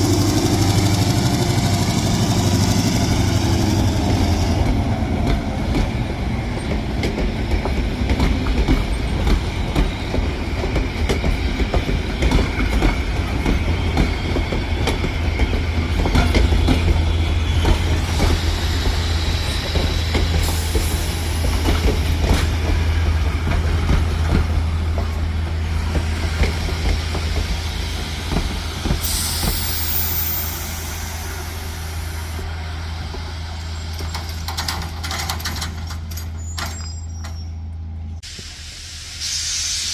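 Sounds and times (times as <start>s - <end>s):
wheel squeal: 29.0s - 31.1s, 36.1s - 37.7s
high hiss: 29.0s - 32.4s, 38.2s - 39.9s
wheels clicking over rail joints: 32.3s - 37.6s.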